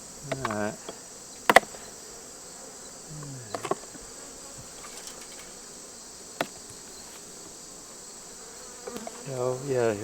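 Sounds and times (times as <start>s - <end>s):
insects chorus: 0.0s - 10.0s
sharp knocks: 0.3s - 1.8s.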